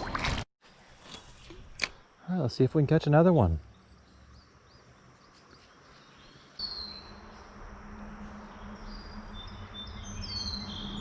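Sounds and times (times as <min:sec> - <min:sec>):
outdoor background noise: 0:00.0 - 0:11.0
birds chirping: 0:02.4 - 0:11.0.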